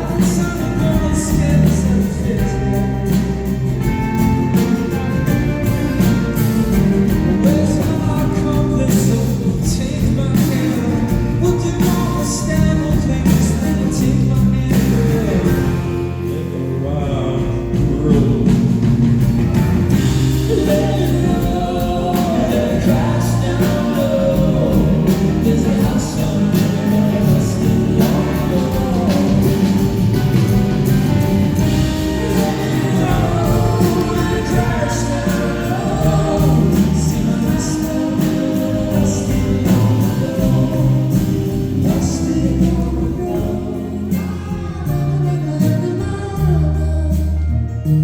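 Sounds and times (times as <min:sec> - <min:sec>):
band playing a song: 0:00.0 - 0:48.0
choir-like chorus singing: 0:19.9 - 0:44.2.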